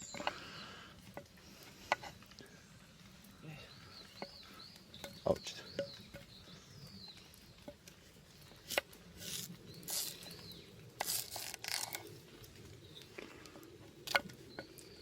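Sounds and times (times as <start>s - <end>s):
bird chirping faintly: 0.0s - 10.8s
rustling and scraping: 0.0s - 15.0s.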